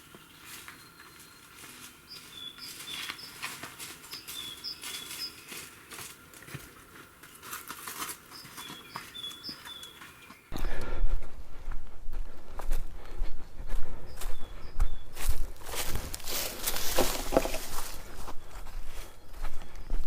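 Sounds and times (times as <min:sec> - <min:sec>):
dry twigs crackling: 0:00.0 - 0:10.3, 0:15.6 - 0:18.2
songbird singing: 0:00.0 - 0:10.8, 0:14.0 - 0:15.6, 0:16.6 - 0:20.0.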